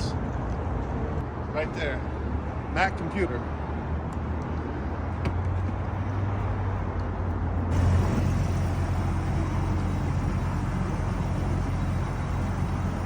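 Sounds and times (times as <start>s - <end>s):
pickup truck engine running: 7.7s - 13.0s.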